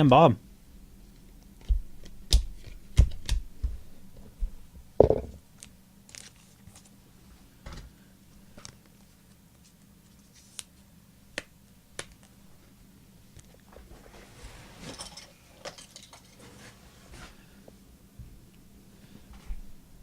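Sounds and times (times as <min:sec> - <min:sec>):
knock on table: 0:05.0 - 0:05.4.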